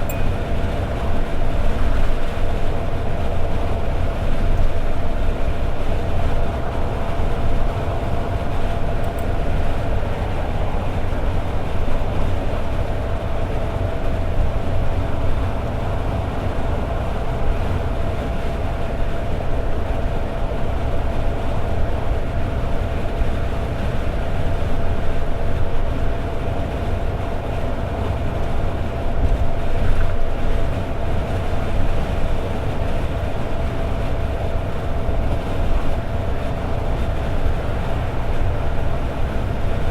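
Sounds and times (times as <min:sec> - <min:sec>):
car engine droning: 0:00.0 - 0:39.9
road and tyre rumble: 0:00.0 - 0:39.9.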